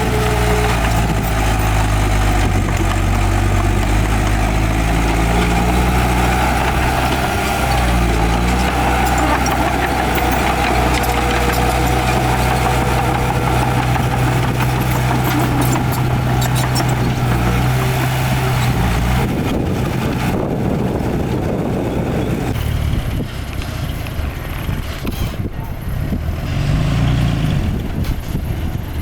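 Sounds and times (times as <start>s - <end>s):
light metallic rattles: 0.0s - 20.4s
heavy diesel engine running: 0.0s - 29.0s.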